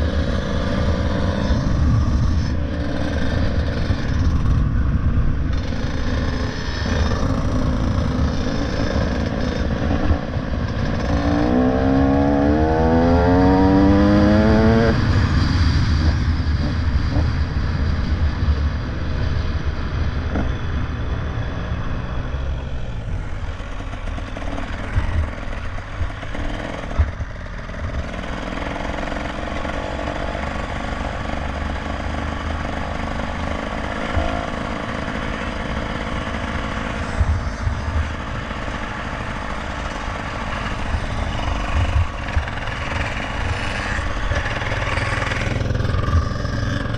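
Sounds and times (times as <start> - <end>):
wind rush on microphone: 0.0 - 28.2
motorcycle engine: 0.0 - 46.9.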